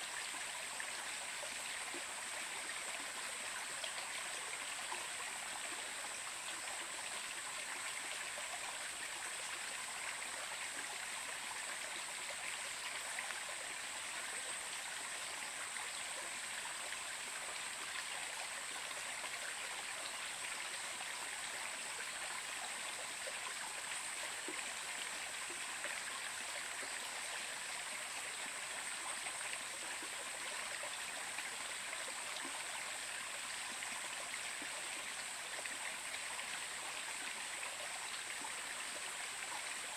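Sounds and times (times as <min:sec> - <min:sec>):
stream of water running: 0:00.0 - 0:39.9.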